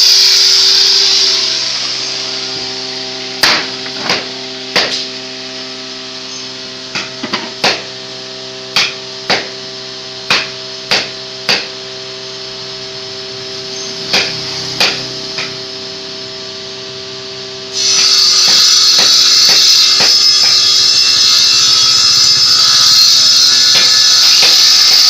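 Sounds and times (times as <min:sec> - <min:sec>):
power tool high hiss: 0:00.0 - 0:25.0
hammer blows on wood: 0:10.3 - 0:11.8, 0:14.1 - 0:15.6, 0:17.9 - 0:20.5.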